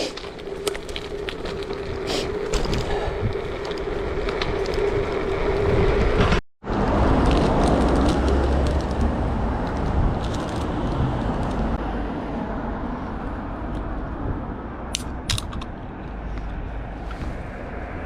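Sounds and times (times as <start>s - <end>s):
wind buffeting microphone: 0.0s - 12.1s
bicycle rolling rumble: 0.0s - 14.5s.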